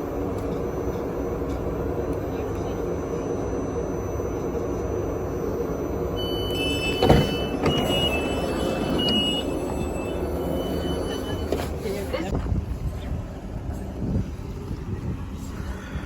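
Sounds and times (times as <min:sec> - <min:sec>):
train low rumble: 0:00.0 - 0:16.0
high beeping tone: 0:06.2 - 0:11.6.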